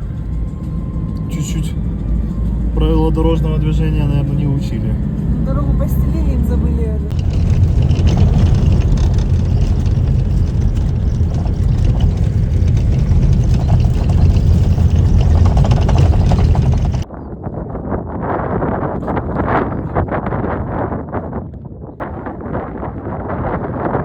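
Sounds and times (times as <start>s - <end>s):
road noise: 0.0s - 17.1s
vehicle engine rumble: 0.0s - 17.1s
gusty wind noise: 3.7s - 24.0s.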